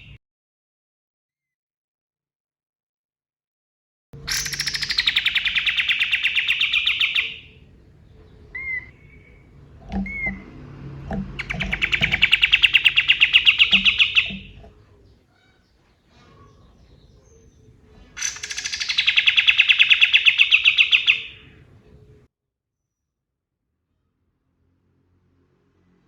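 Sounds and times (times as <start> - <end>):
songbird rattling trills: 4.2 - 15.2, 16.2 - 22.2.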